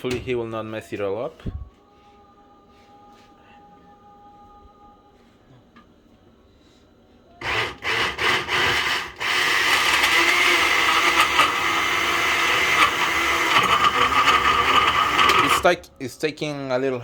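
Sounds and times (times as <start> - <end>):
blender running: 7.4 - 15.7.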